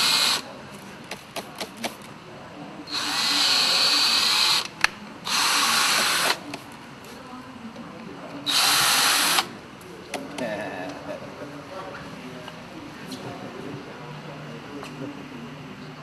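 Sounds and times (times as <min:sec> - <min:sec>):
power tool whirring: 0:00.0 - 0:00.5, 0:02.9 - 0:06.6, 0:08.4 - 0:09.5.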